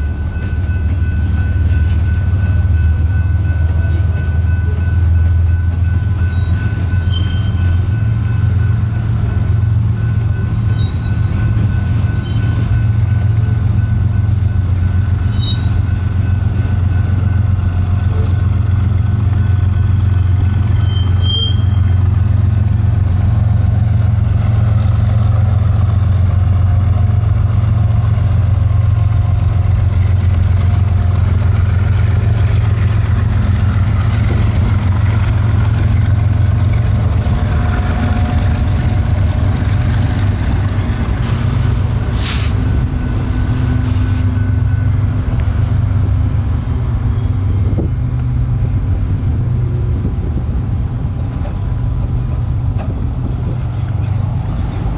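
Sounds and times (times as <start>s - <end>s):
passing freight cars: 0.0s - 54.9s
diesel engine drone: 12.8s - 54.9s.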